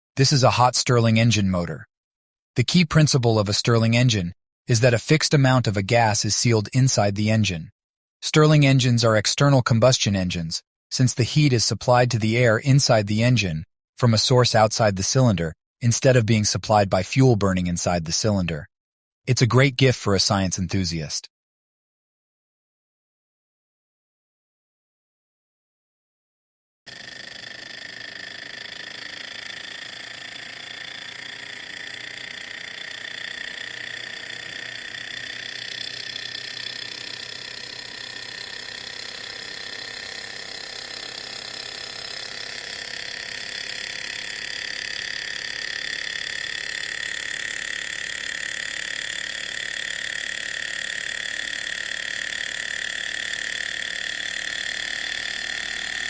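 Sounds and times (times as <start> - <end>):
toy engine mechanical whir: 26.9 - 56.0.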